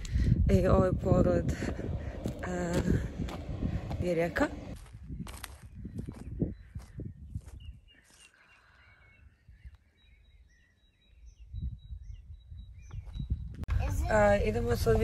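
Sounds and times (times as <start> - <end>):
low microphone rumble: 0.0 - 7.8
faint birdsong chirps: 4.8 - 14.9.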